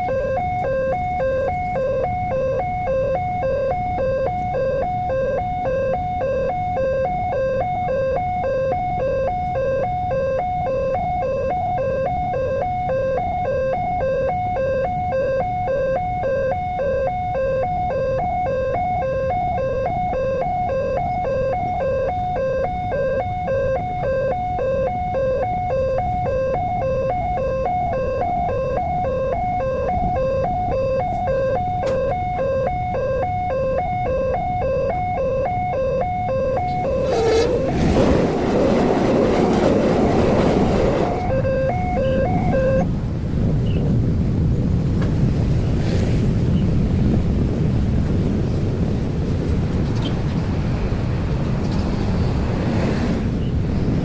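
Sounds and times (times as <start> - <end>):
level crossing two-tone alarm: 0.0 - 42.9.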